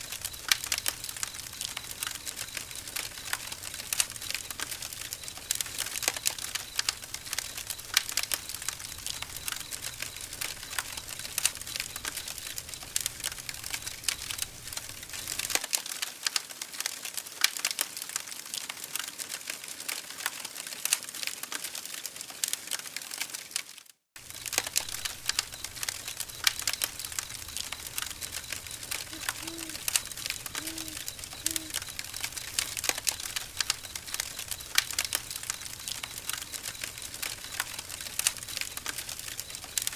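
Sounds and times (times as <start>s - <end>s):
campfire crackling: 0.0s - 39.9s
short low tones: 29.0s - 32.0s.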